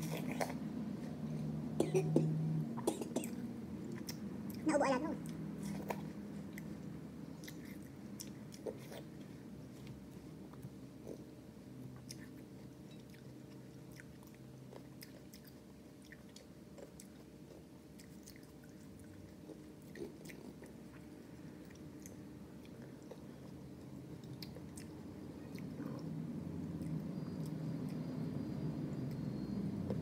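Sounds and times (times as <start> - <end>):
person chewing grapes: 0.0 - 1.5, 3.8 - 28.2
steady low hum: 0.0 - 30.0.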